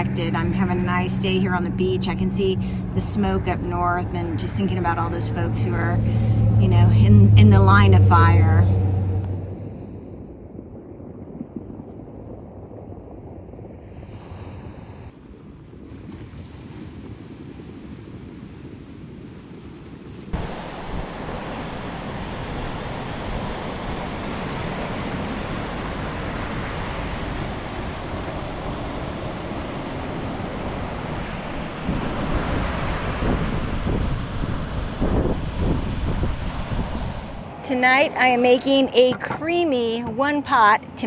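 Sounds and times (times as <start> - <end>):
wind buffeting microphone: 0.0 - 41.0
ocean surf washing on beach: 13.6 - 41.0.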